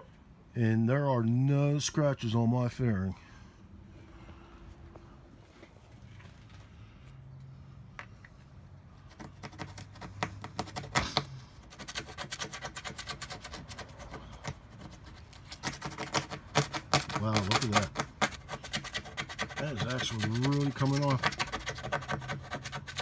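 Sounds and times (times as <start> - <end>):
plastic scraper scraping adhesive: 9.1 - 23.0.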